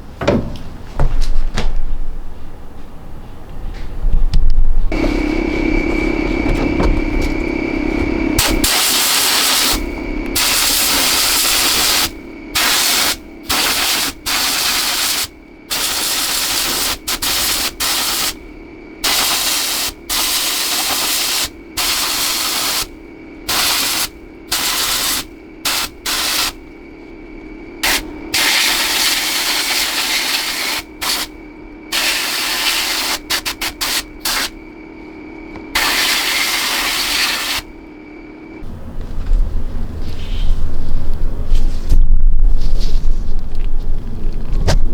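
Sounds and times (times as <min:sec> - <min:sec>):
steady hum: 0:00.0 - 0:44.9
compressed air hissing: 0:07.0 - 0:26.8, 0:27.8 - 0:34.6, 0:35.7 - 0:37.8.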